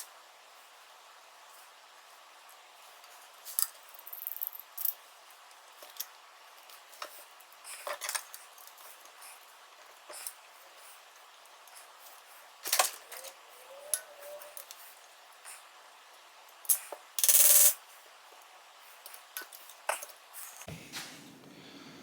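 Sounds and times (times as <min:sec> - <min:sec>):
small metal parts clicking: 0:03.5 - 0:05.0, 0:16.7 - 0:17.8.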